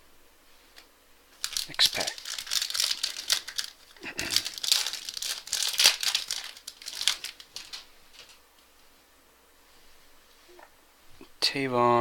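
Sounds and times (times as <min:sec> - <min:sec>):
wrapper crinkling and tearing: 0:01.4 - 0:08.4.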